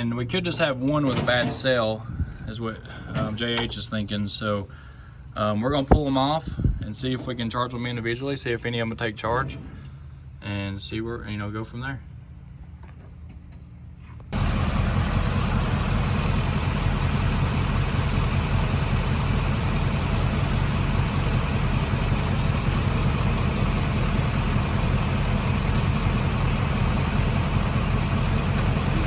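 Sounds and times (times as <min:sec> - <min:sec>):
diesel truck engine idling: 0:14.4 - 0:29.0.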